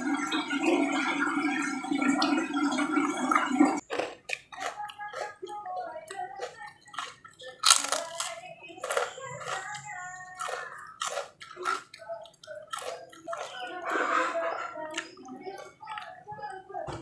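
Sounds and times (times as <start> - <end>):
chewing crunches: 3.8 - 16.2
muffled low voice: 13.4 - 17.0.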